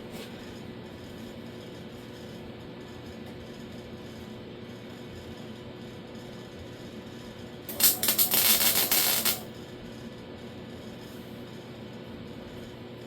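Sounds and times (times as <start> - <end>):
welding arc crackling: 7.7 - 9.5.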